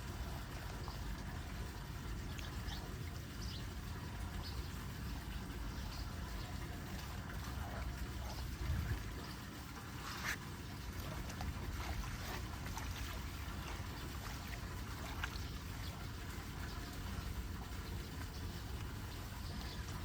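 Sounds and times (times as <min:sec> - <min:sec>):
small clicks and splashes: 0:00.0 - 0:03.5, 0:04.2 - 0:20.0
water flowing into storm drain: 0:00.0 - 0:20.0.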